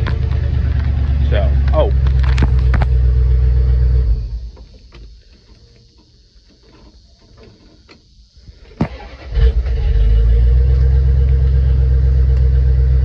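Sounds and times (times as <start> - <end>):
engine cranking and idling: 0.0 - 13.0
ignition click: 8.8 - 9.8.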